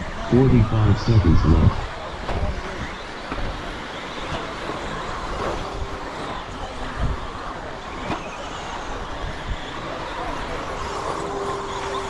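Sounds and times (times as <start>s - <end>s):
track background noise: 0.0s - 2.4s
rc truck motors whining: 0.0s - 12.0s.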